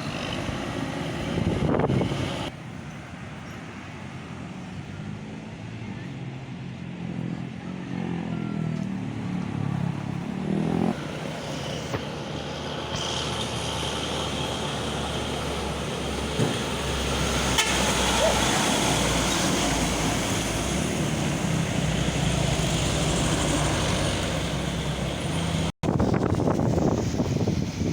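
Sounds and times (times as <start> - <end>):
traffic noise: 0.0 - 27.9
truck engine running: 11.0 - 27.9.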